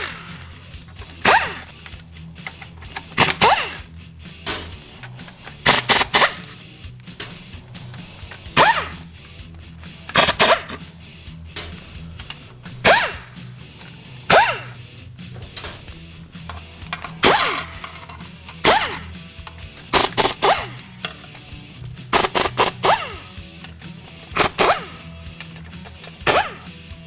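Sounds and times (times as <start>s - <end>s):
background music: 0.0s - 27.0s.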